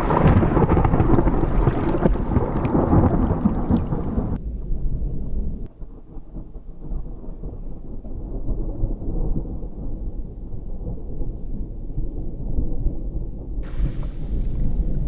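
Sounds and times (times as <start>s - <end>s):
thunder rumbling: 0.0s - 10.0s, 13.6s - 15.0s.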